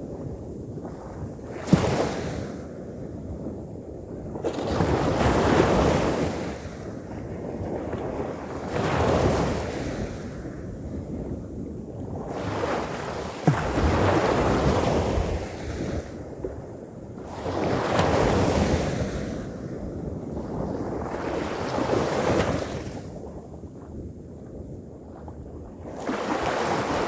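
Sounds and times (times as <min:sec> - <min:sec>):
wind on microphone: 0:00.0 - 0:27.0
ocean waves breaking: 0:25.9 - 0:27.0.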